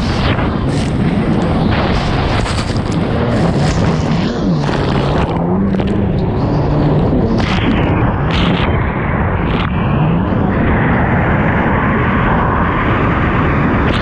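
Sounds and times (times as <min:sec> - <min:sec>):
watercraft engine revving: 0:00.0 - 0:08.6
wind buffeting microphone: 0:00.0 - 0:14.0.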